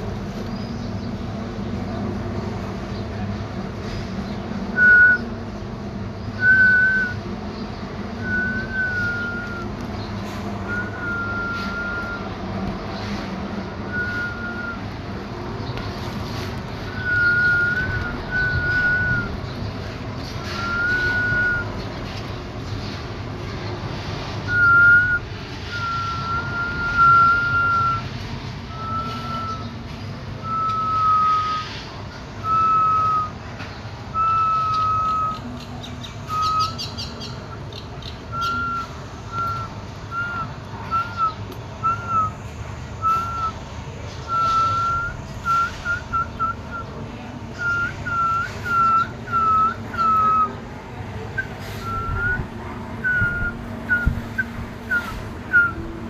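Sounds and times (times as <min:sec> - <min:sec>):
clear whistle notes: 0:04.8 - 0:05.2, 0:06.4 - 0:07.2, 0:08.2 - 0:09.7, 0:10.7 - 0:12.3, 0:13.9 - 0:14.9, 0:17.0 - 0:19.4, 0:20.4 - 0:21.8, 0:24.5 - 0:28.1, 0:28.7 - 0:29.7, 0:30.4 - 0:31.8, 0:32.4 - 0:33.4, 0:34.1 - 0:35.4, 0:36.3 - 0:37.0, 0:38.3 - 0:42.4, 0:43.0 - 0:43.6, 0:44.3 - 0:46.9, 0:47.6 - 0:50.6, 0:51.4 - 0:55.8.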